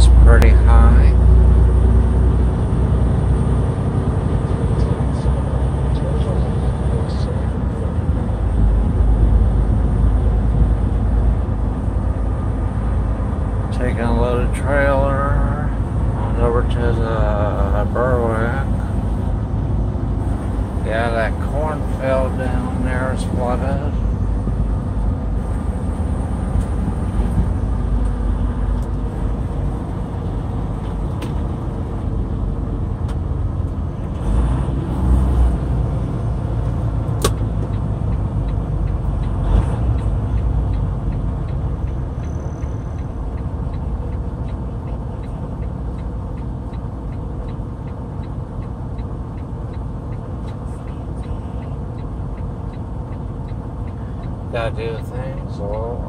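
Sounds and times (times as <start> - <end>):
truck engine and road rumble: 0.0 - 56.0
sharp click: 37.1 - 37.8.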